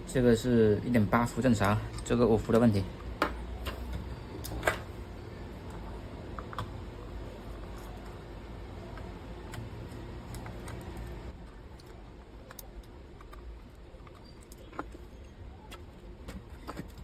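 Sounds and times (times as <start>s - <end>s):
tools clicking and tapping: 1.5s - 4.9s.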